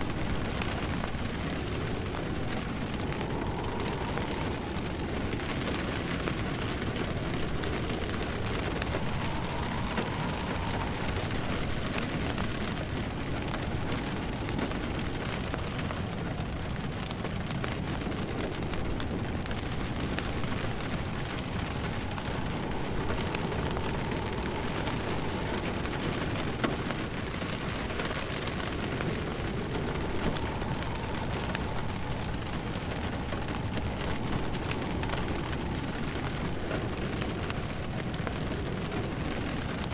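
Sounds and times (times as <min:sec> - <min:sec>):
steady rain: 0:00.0 - 0:39.9
wood fire crackling: 0:00.0 - 0:39.9.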